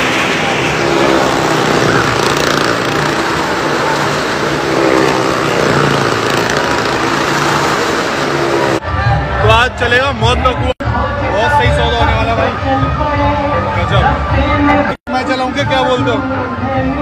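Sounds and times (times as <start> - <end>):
car engines droning: 0.0 - 10.0.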